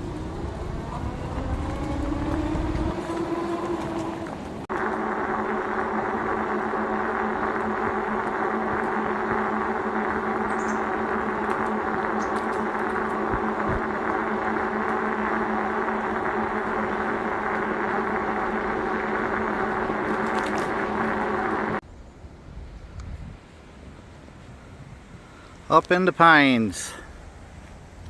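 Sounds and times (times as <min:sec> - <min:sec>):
motor humming: 0:00.0 - 0:21.8.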